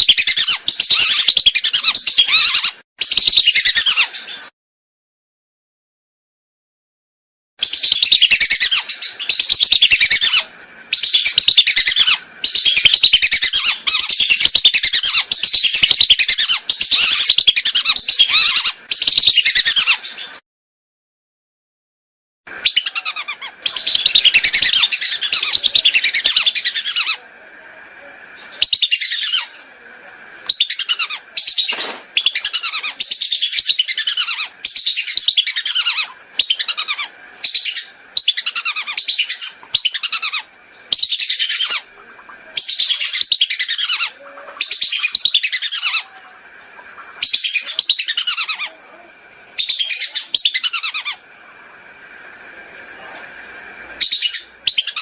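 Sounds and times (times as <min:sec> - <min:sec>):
whistling ducks calling: 0:00.0 - 0:04.5, 0:07.6 - 0:20.3, 0:22.6 - 0:27.2, 0:30.4 - 0:55.0.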